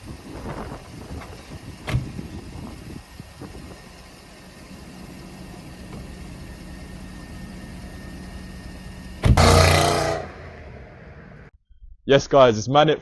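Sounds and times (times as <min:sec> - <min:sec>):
car engine idling: 0:00.0 - 0:11.5
loud sudden burst: 0:09.2 - 0:11.0.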